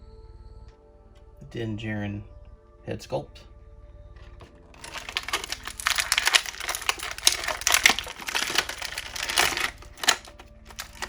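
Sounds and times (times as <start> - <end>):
plastic packaging crinkling: 4.8 - 11.0.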